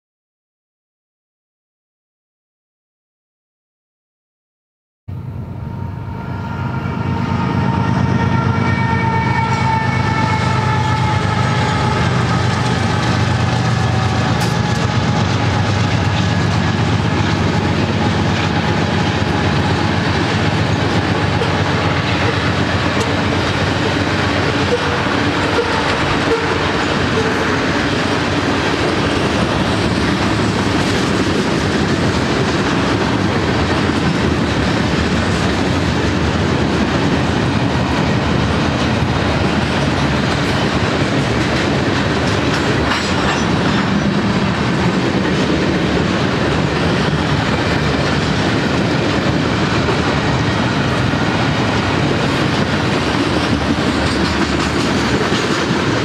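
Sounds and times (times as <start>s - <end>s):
locomotive horn: 5.1s - 28.7s
locomotive engine drone: 5.1s - 56.0s
freight cars clattering on rails: 10.4s - 56.0s.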